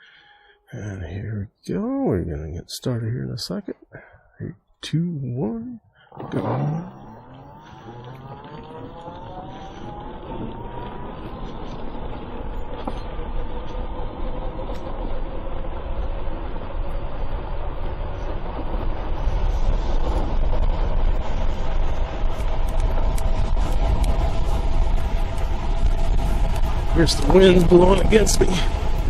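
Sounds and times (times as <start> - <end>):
electric motor whine: 6.2 - 29.0
wind buffeting microphone: 6.2 - 29.0.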